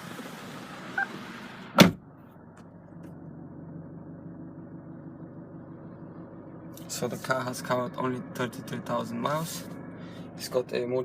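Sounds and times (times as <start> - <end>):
low cabin hum: 0.0 - 11.0
car door shutting thud: 1.8 - 2.0.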